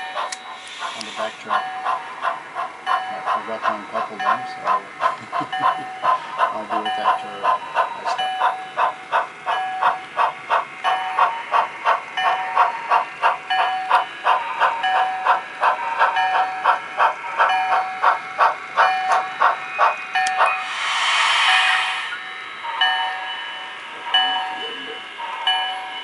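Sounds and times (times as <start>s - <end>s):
model steam locomotive chuffing: 0.0s - 23.3s
loud hiss of steam: 0.6s - 1.5s, 20.5s - 22.4s.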